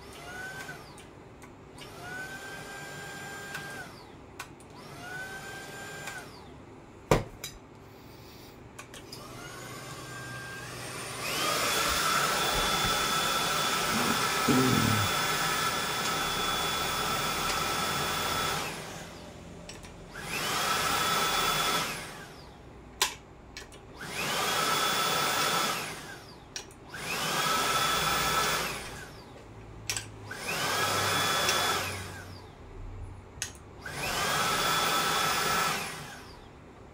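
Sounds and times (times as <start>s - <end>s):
vacuum cleaner motor whining: 0.1s - 1.0s, 1.8s - 6.5s, 9.0s - 22.6s, 24.0s - 29.4s, 30.3s - 32.5s, 33.8s - 36.5s.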